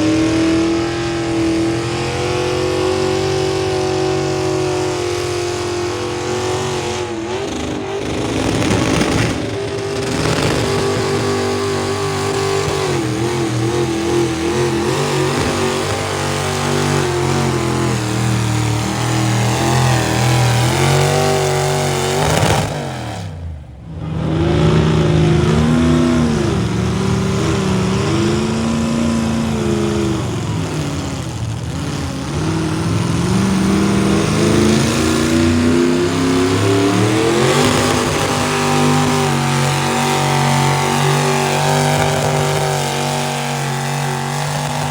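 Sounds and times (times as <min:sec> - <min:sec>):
engine revving hard: 0:00.0 - 0:44.9.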